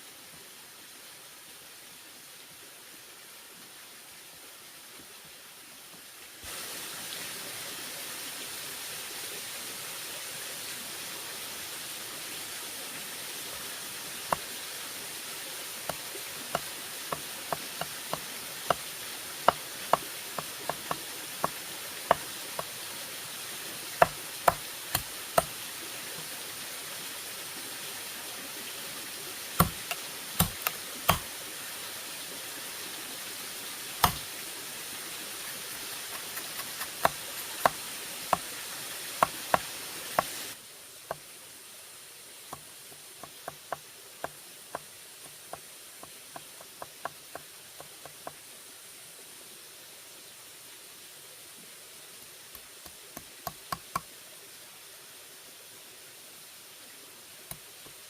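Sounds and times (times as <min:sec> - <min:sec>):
steady hiss: 0:00.0 - 0:58.0
tool knocking on bamboo: 0:19.5 - 0:22.3, 0:24.0 - 0:25.5, 0:29.6 - 0:31.2, 0:34.0 - 0:34.2, 0:37.0 - 0:38.4, 0:42.6 - 0:44.4, 0:53.4 - 0:54.1.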